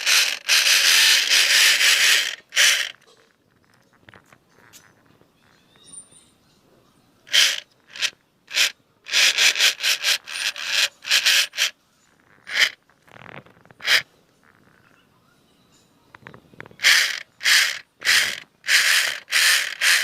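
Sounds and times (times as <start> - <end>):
rough rubbing strokes: 0.0 - 3.0, 7.3 - 14.1, 16.8 - 20.0.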